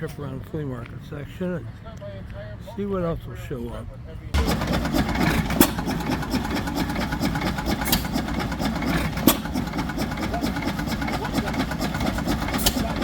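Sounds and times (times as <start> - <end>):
engine idling: 4.3 - 13.0
sharp engine pops: 4.4 - 13.0.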